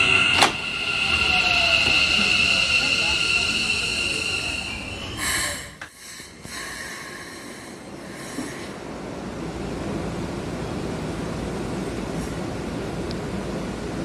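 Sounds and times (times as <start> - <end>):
faint high steady tones: 0.0 - 8.4
idle electric trains rushing noise: 0.0 - 14.0.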